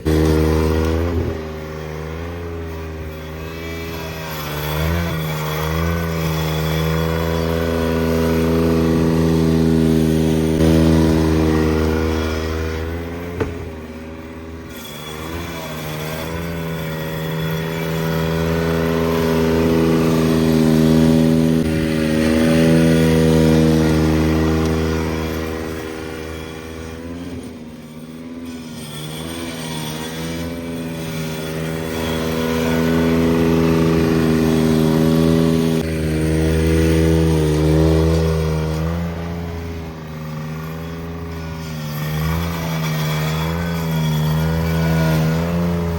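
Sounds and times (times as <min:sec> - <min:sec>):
engine running steadily: 0:00.0 - 0:05.4, 0:06.1 - 0:14.8, 0:16.2 - 0:28.4.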